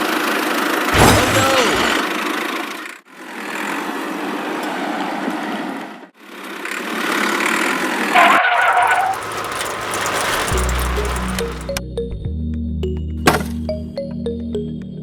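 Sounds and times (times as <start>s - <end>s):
small engine running: 6.2s - 11.8s.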